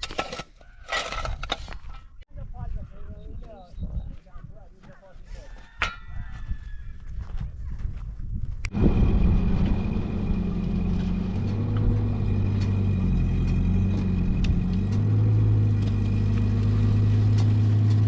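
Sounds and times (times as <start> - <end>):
engine running at low revs: 8.6 - 18.0.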